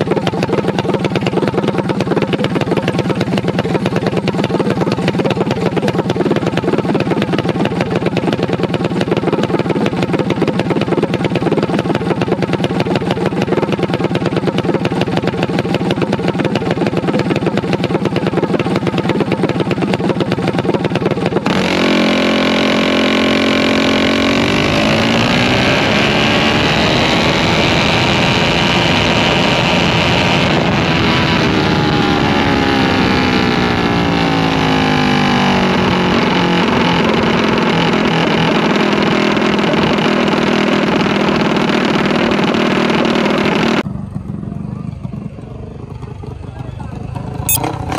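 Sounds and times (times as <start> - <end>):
vehicle engine running: 0.0 - 47.9.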